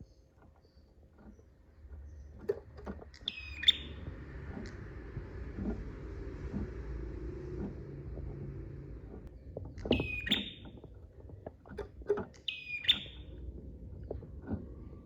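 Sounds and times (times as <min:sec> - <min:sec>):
short ticking bird notes: 0:03.2 - 0:04.0, 0:09.9 - 0:10.7, 0:12.4 - 0:13.3.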